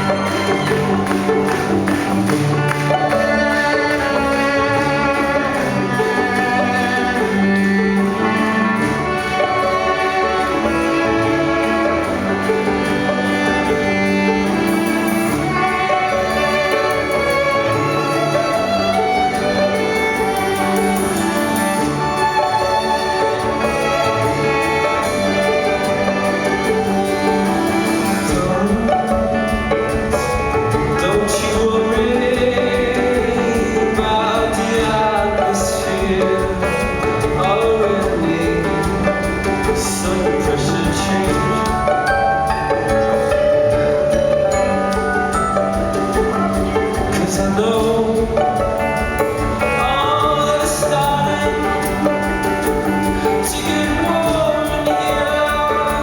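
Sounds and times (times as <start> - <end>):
bowed violin: 0.0 - 56.0
rock band playing: 0.0 - 56.0.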